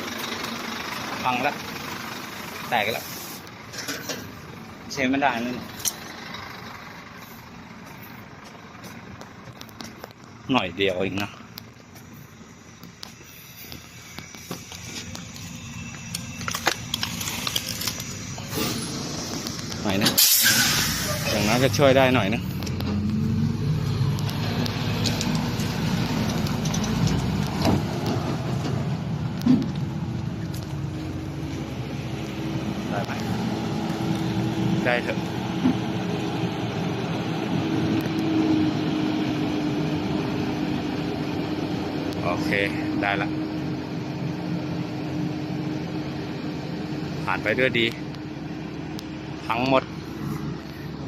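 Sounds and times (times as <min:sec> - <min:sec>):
truck diesel engine rumbling: 0:00.0 - 0:51.0
crackles and clicks: 0:08.8 - 0:10.5, 0:11.2 - 0:33.3.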